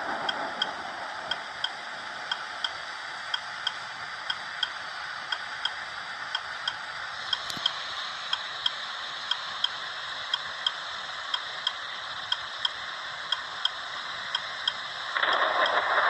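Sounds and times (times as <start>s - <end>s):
rushing noise: 0.0s - 5.2s, 14.9s - 16.0s
steady hiss: 0.0s - 16.0s
turn signal clicking: 6.4s - 15.8s.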